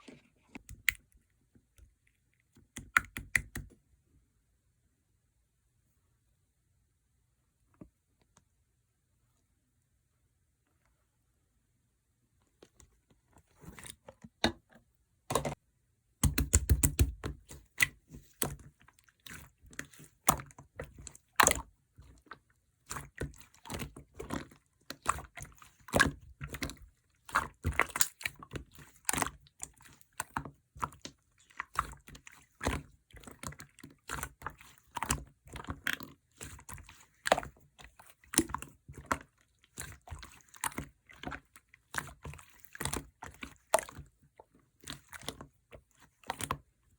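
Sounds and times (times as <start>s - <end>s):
slime squelching by hand: 12.4s - 15.6s, 16.2s - 46.9s.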